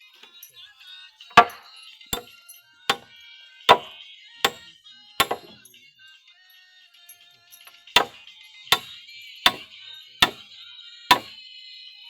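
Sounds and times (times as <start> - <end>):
hand tool striking: 1.3 - 3.1, 3.7 - 5.7, 7.6 - 10.5, 11.1 - 11.4.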